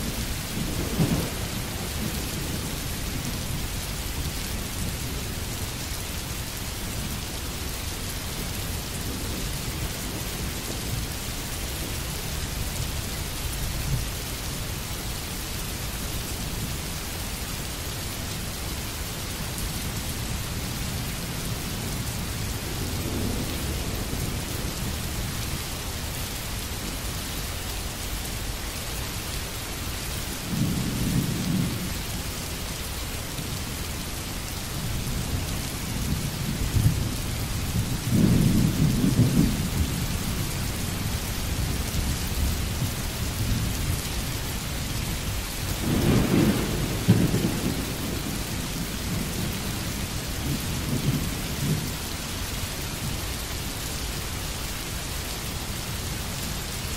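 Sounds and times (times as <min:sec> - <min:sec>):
rain hiss: 0:00.0 - 0:56.9
thunder rolling: 0:45.8 - 0:49.5.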